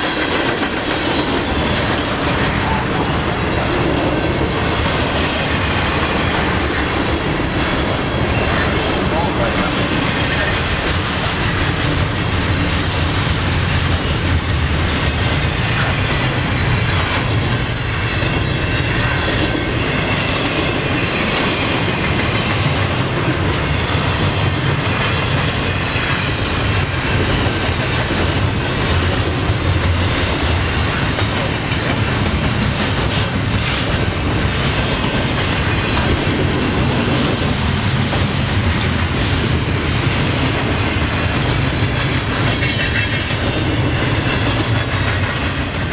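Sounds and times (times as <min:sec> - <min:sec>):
freight train rumbling past: 0:00.0 - 0:45.9
wheels clicking over rail joints: 0:00.0 - 0:45.9
wheel squeals: 0:45.0 - 0:45.9.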